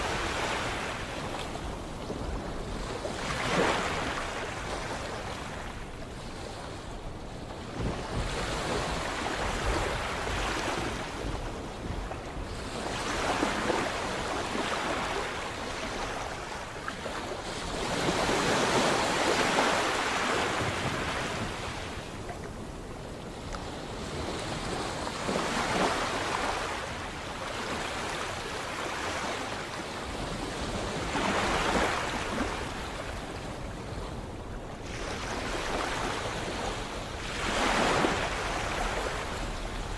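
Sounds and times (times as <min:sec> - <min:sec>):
sea waves breaking: 0:00.0 - 0:05.8, 0:12.6 - 0:22.9, 0:23.5 - 0:33.7, 0:34.8 - 0:39.9.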